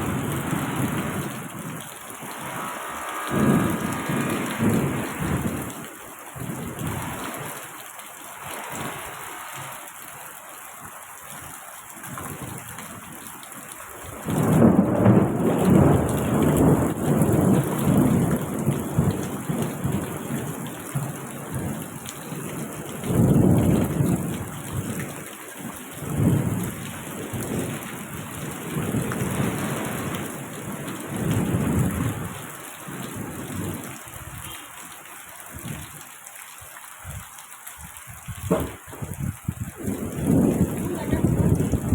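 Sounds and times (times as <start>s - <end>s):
rolling thunder: 0.0s - 7.5s, 14.2s - 25.2s, 26.0s - 32.4s, 38.2s - 41.9s
rain falling: 0.0s - 41.9s.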